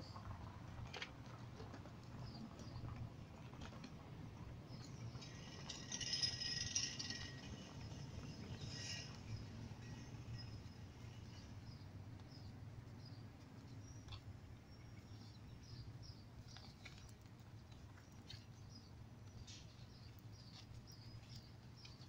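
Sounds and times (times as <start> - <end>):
small birds chirping: 2.0 - 3.7, 7.9 - 22.0.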